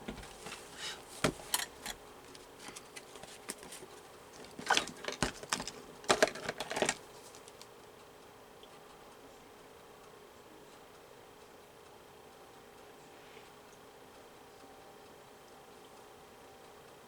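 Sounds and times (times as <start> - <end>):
paper rustling: 0.1 - 7.6.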